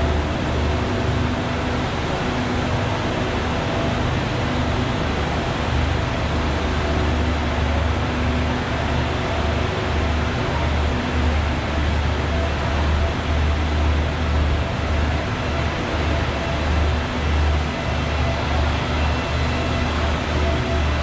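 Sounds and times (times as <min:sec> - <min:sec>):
train engine low hum: 0:00.0 - 0:21.0.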